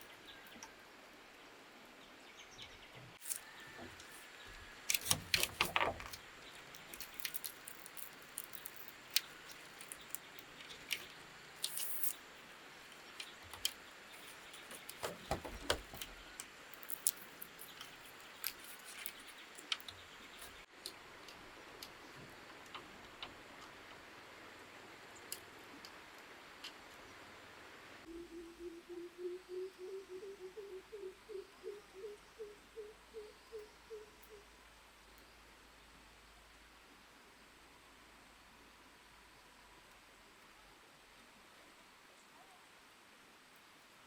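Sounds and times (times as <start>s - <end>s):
clicks taps and knocks: 14.6s - 16.1s.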